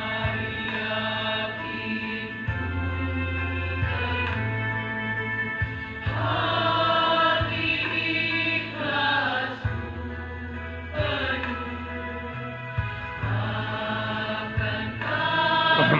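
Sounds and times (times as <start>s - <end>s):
choir of young voices singing: 0.0s - 5.2s, 6.0s - 12.5s, 13.1s - 15.9s
held low accompaniment notes: 15.6s - 15.9s.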